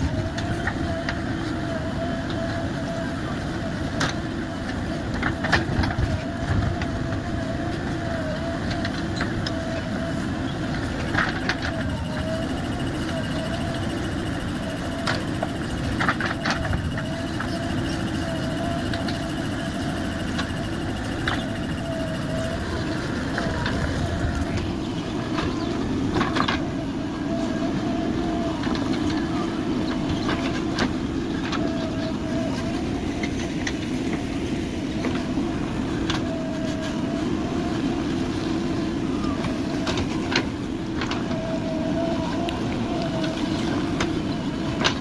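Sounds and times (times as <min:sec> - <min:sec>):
diesel engine running: 0:00.0 - 0:45.0
wavering whine: 0:00.0 - 0:45.0.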